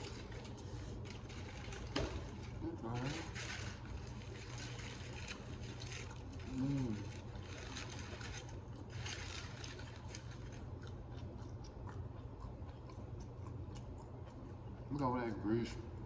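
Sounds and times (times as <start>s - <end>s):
steady low hum: 0.0s - 16.0s
person chewing: 3.9s - 15.0s
person humming mm: 6.5s - 7.1s.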